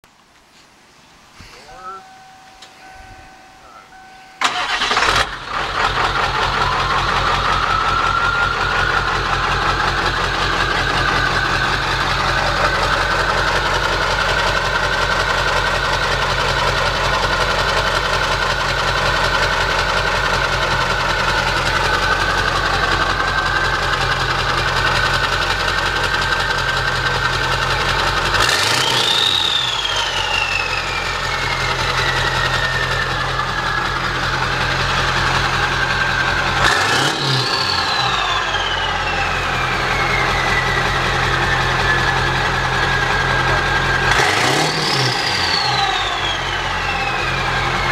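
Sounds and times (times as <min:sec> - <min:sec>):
diesel engine idling with clatter: 0:03.3 - 0:47.9
turbo whistle: 0:28.5 - 0:33.9, 0:36.2 - 0:47.9.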